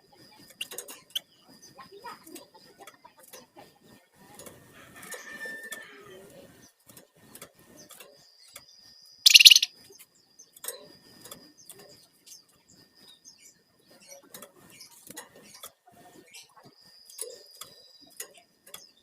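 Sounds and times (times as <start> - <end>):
bird short clicks: 9.3 - 9.7
harsh bird call burst: 9.3 - 9.7
songbird high whistle: 9.3 - 9.7.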